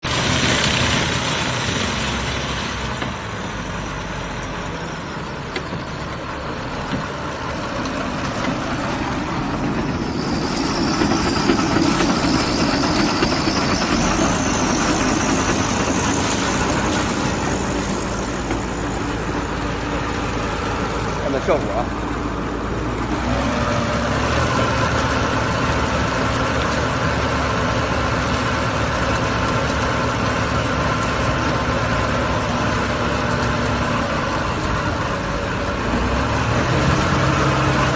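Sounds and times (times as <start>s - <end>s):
baling machine running: 7.8s - 28.0s.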